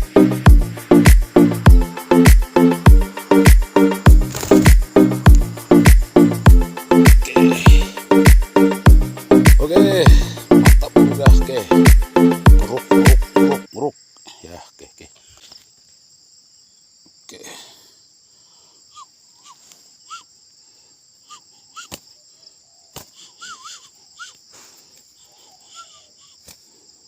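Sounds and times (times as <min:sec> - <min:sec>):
music: 0:00.0 - 0:13.7
insects droning: 0:00.0 - 0:27.0.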